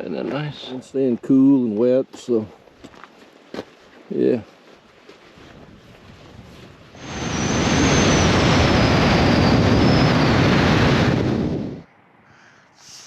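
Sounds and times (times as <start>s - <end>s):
wind rushing over microphone: 5.4s - 11.9s.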